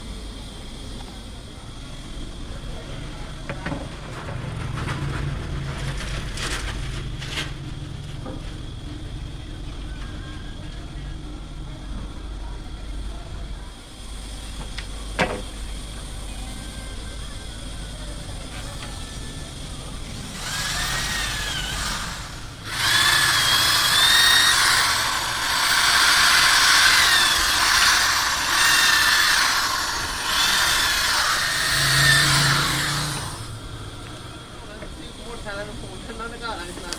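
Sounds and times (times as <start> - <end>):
power saw cutting wood: 20.3 - 33.6.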